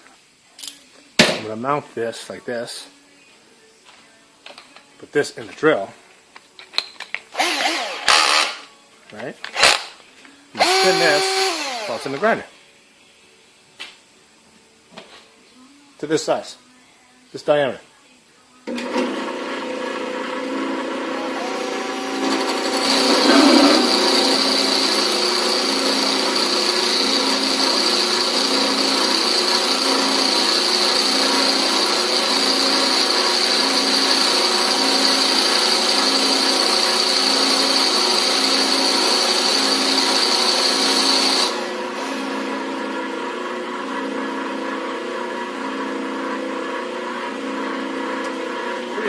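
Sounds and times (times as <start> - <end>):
electric drill and grinder motors: 7.3 - 8.7, 9.5 - 9.9, 10.6 - 12.3, 21.1 - 49.0.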